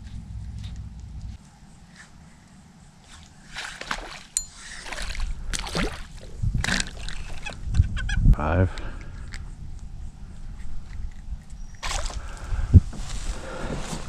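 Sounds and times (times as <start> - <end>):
water sloshing against kayak: 3.2 - 7.6.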